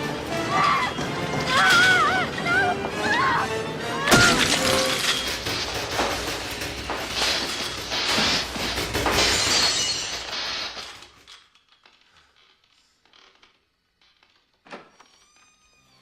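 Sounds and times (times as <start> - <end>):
glass shattering: 4.1 - 11.7.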